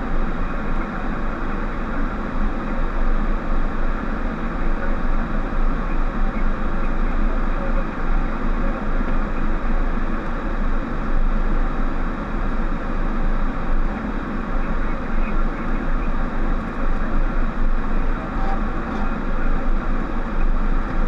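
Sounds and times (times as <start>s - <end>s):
aircraft engines and airflow rumble: 0.0s - 21.0s.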